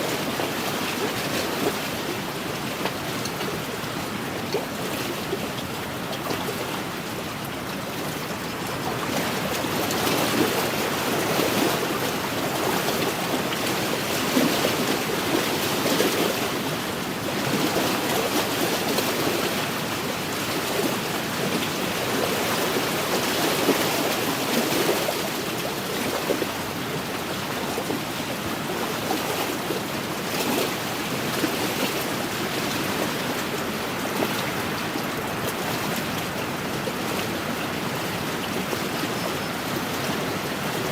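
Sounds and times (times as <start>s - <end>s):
waves lapping on shore: 0.0s - 40.9s.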